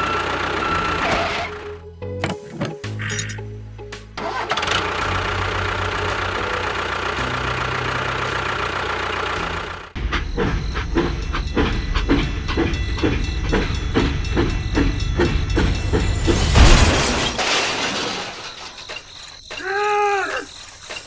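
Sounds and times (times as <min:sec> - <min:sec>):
vehicle engine running: 0:04.0 - 0:17.3.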